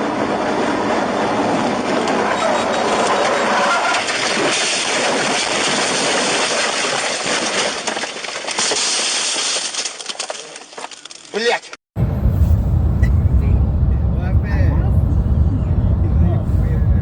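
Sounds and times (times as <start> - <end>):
vehicle road and wind noise: 0.0 - 7.4, 12.0 - 17.0.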